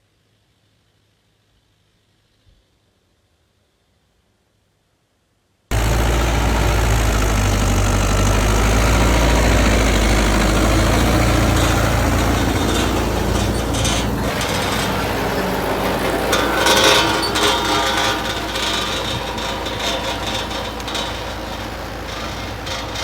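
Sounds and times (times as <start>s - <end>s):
clattering knocks: 5.7s - 23.0s
tractor running: 5.7s - 23.0s.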